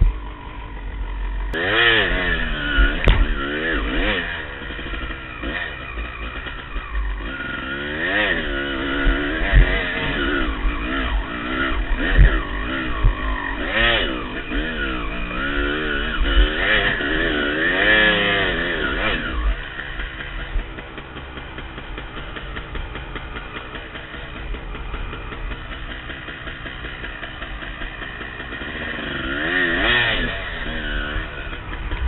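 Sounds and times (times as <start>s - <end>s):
dirt bike engine revving hard: 0.0s - 32.0s
low thumps: 2.1s - 4.1s, 8.4s - 14.6s.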